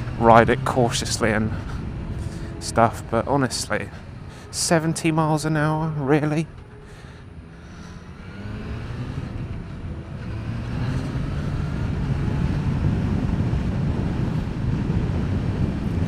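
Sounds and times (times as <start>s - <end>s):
motorcycle engine accelerating: 0.0s - 16.0s
wind rush on microphone: 8.8s - 16.0s.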